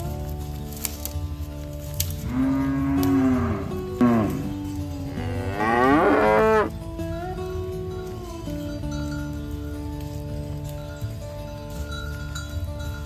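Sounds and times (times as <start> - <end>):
background music: 0.0 - 13.0
cattle mooing: 2.2 - 6.8.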